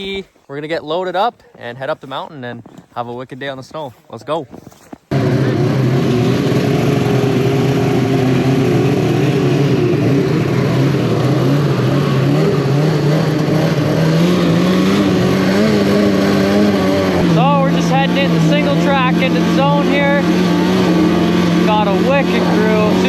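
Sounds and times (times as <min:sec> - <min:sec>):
rushing wind and track noise: 0:05.1 - 0:23.0
snowmobile engine drone: 0:05.1 - 0:23.0.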